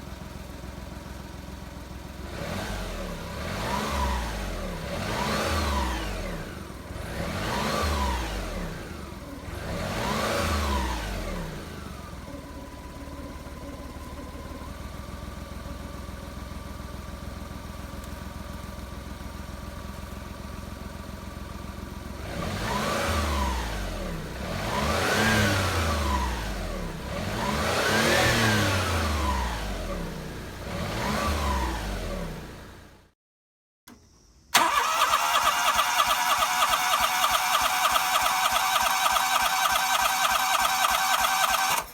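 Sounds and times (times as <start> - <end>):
engine idling: 0.0 - 2.6, 6.0 - 22.6, 34.6 - 41.9
engine revving in throttle blips: 2.2 - 15.0, 22.1 - 32.9, 34.6 - 41.9.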